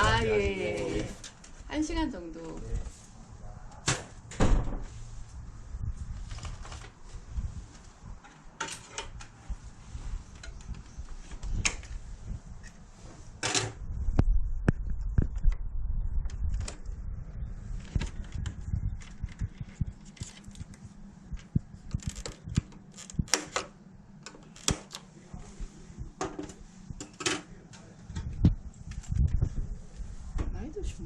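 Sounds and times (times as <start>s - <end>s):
low rumble: 2.8s - 8.2s, 9.4s - 24.2s, 27.8s - 31.0s.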